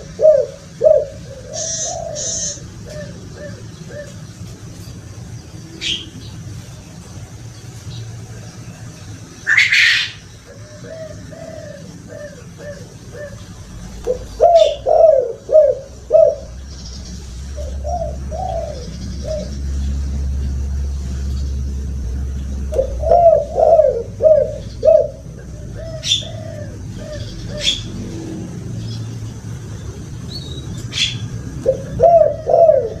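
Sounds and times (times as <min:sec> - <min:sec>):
bird chirping high: 0:00.0 - 0:04.2, 0:05.4 - 0:06.4, 0:09.4 - 0:33.0
doves cooing: 0:00.0 - 0:33.0
low rumble: 0:13.0 - 0:33.0.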